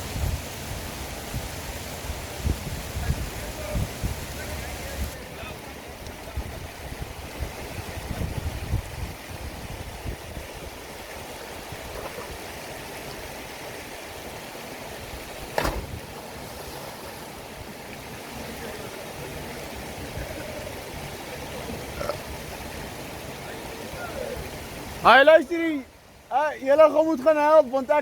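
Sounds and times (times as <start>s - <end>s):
river water flowing: 0.0s - 28.0s
sharp knock: 15.5s - 16.0s.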